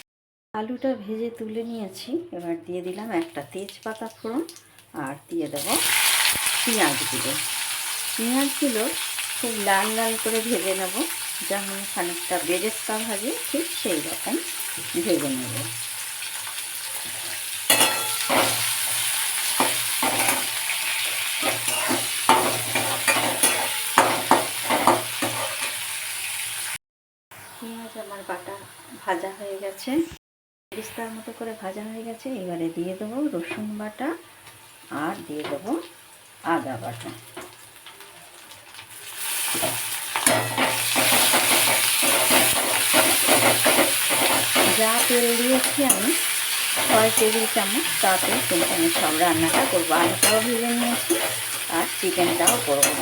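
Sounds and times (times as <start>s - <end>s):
onions sizzling in oil: 5.5s - 26.8s, 32.9s - 53.0s
spatula scraping pan: 16.8s - 25.9s, 39.4s - 53.0s.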